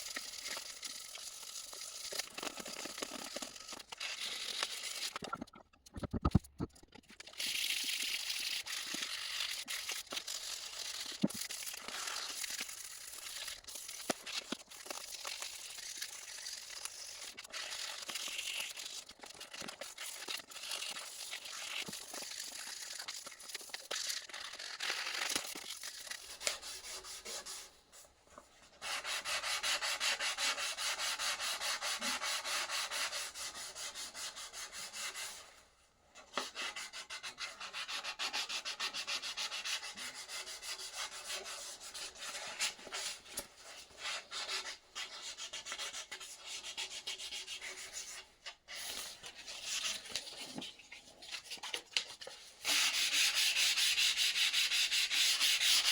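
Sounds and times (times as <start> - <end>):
sandpaper rubbing: 7.3 - 27.8, 28.8 - 35.4, 36.5 - 50.2, 52.6 - 55.9.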